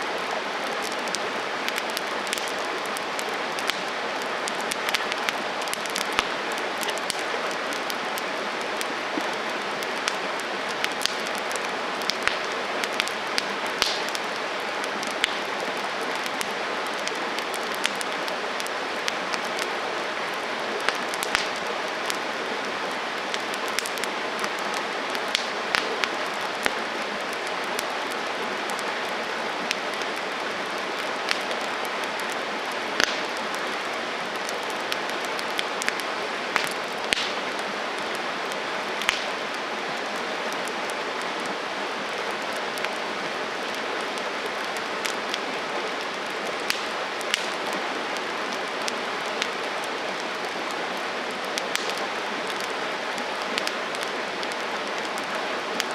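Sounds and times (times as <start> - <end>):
campfire flames hissing: 0.0 - 55.9
wood crackling and popping: 0.0 - 55.9.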